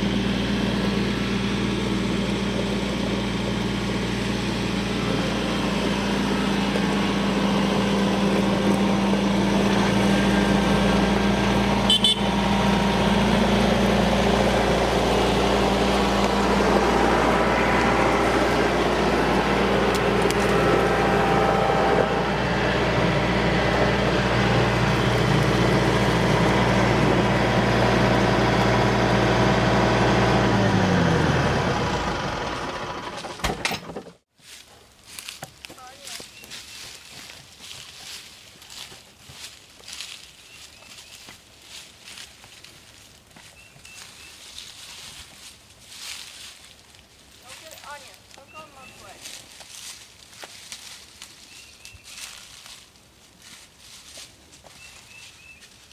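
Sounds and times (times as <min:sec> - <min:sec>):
tractor engine running: 0:00.0 - 0:34.3.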